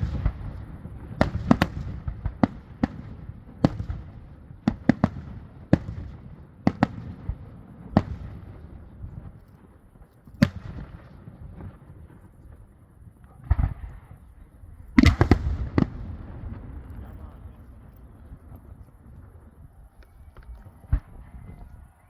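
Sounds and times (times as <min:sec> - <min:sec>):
loud firework bangs: 0:00.0 - 0:09.2, 0:13.4 - 0:14.2, 0:15.0 - 0:17.5.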